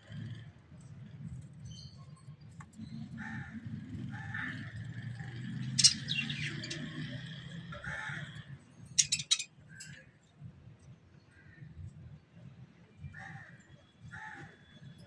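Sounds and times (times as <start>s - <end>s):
birds chirping: 4.2s - 9.9s.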